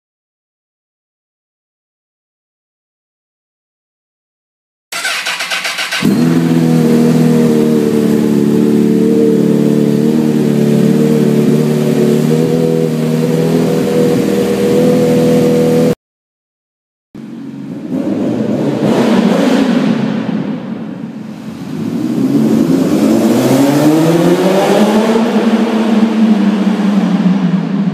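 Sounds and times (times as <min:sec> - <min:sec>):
motorcycle starter cranking: 0:04.9 - 0:06.4
motorcycle engine idling: 0:04.9 - 0:11.8.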